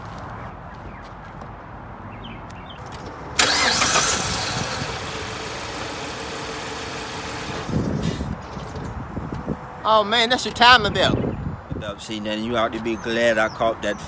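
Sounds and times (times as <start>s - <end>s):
car engine starting and idling: 3.4s - 8.3s.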